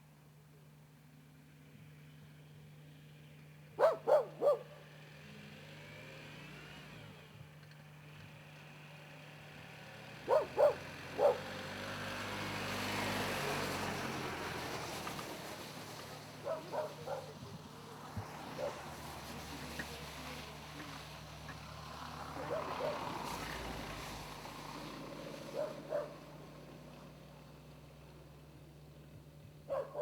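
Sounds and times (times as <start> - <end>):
dog barking: 3.8 - 4.9, 10.2 - 11.6, 16.4 - 17.5, 18.5 - 18.9, 22.3 - 23.1, 25.5 - 26.3, 29.7 - 30.0.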